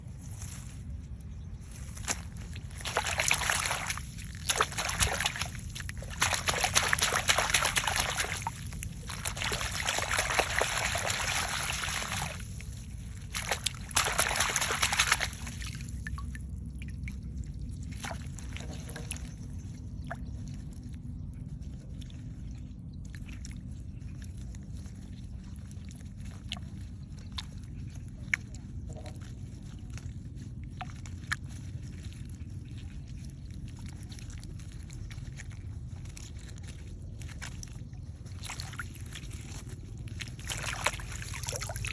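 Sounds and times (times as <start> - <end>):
water sloshing and splashing: 0.0 - 41.9
water dripping: 2.0 - 17.2.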